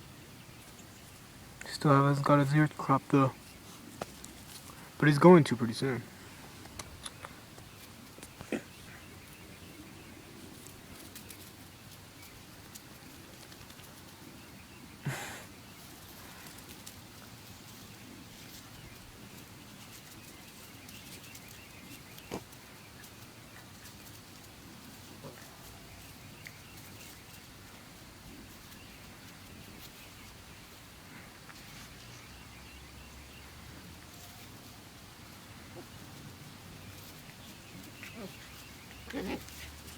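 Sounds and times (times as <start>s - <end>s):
dogs scuffling: 3.4s - 5.2s, 6.0s - 14.7s, 15.7s - 39.9s.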